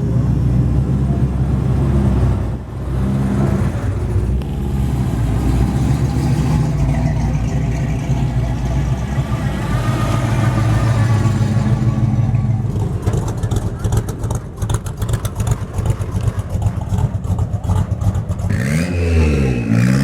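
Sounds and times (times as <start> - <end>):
car engine running at low revs: 0.0 - 18.6.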